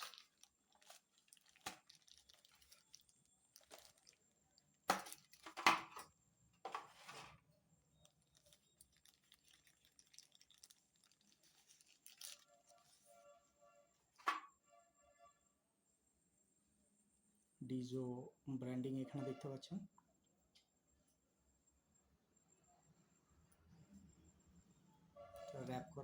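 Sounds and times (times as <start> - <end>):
plastic packaging rustling and ripping: 0.0 - 4.2, 4.9 - 5.9, 8.0 - 13.0.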